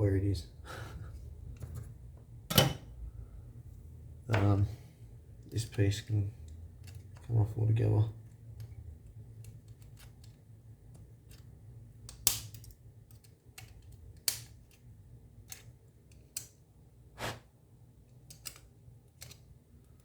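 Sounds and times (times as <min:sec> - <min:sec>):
plastic parts clicking and snapping: 0:06.4 - 0:07.4, 0:08.3 - 0:16.5, 0:18.1 - 0:20.0.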